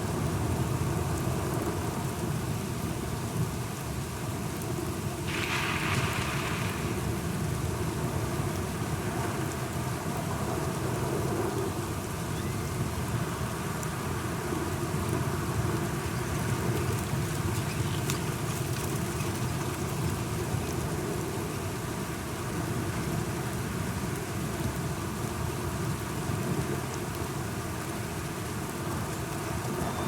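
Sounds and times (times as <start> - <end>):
steady rain falling: 0.0 - 30.0
light drip ticks: 15.0 - 21.3.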